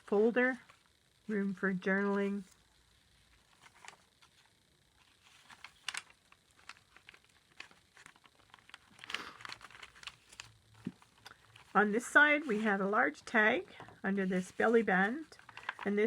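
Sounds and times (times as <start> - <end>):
paper rustling: 3.2 - 12.9, 13.8 - 16.0
light clicks of paper handling: 3.4 - 11.8.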